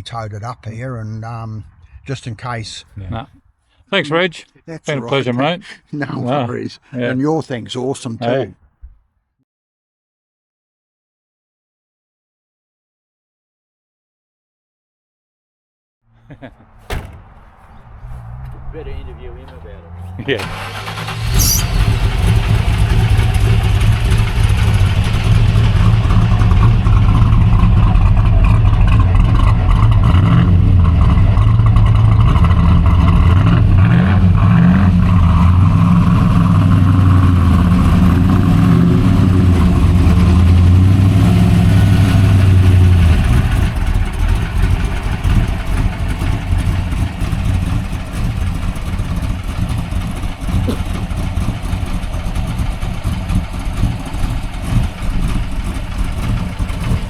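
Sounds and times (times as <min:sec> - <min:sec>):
race car engine revving: 0:16.4 - 0:57.0.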